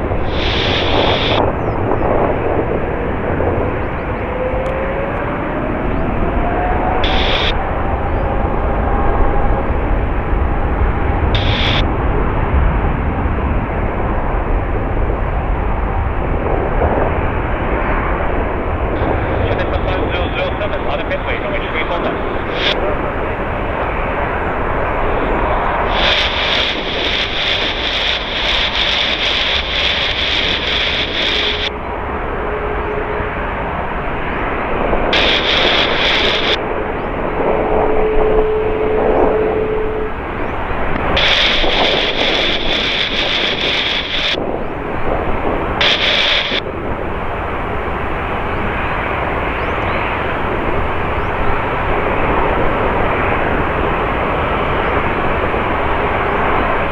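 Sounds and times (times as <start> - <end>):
jet engines rumbling: 0.0 - 56.9.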